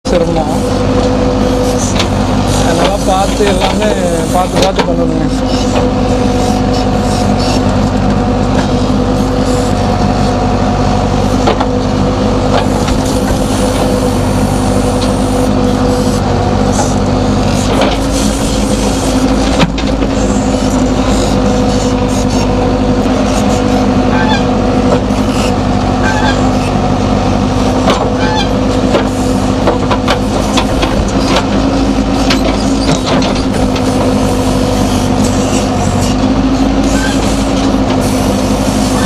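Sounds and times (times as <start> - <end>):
diesel engine running: 0.0 - 39.0
machine clanks and rattles: 1.8 - 5.9, 16.6 - 22.2, 27.8 - 38.1.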